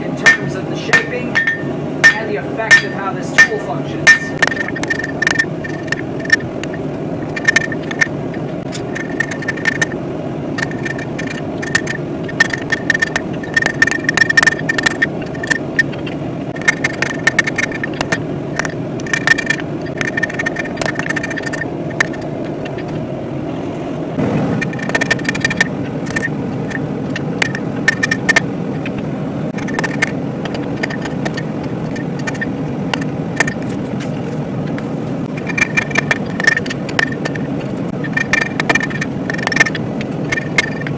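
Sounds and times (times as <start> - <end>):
hammer striking steel on anvil: 0.1 - 4.8.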